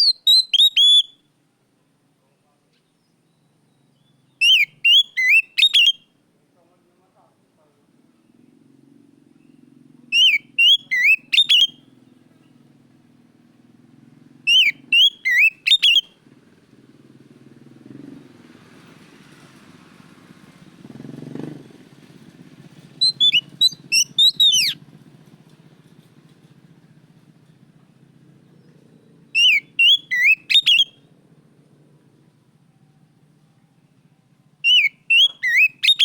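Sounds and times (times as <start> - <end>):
bird singing whistled phrases: 0.0 - 1.2, 3.3 - 6.1, 9.4 - 11.9, 14.5 - 16.1, 23.0 - 24.8, 29.3 - 31.0, 34.6 - 36.0.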